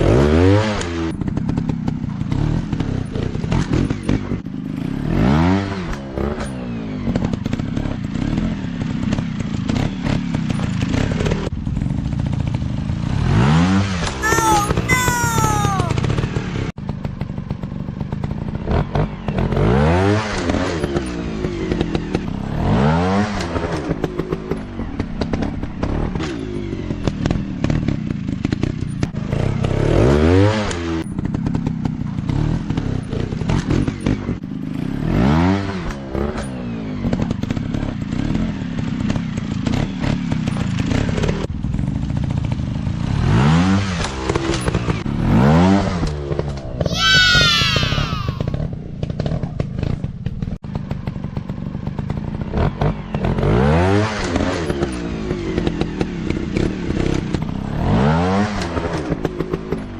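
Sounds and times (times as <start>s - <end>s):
dirt-bike engines revving: 46.8s - 48.6s.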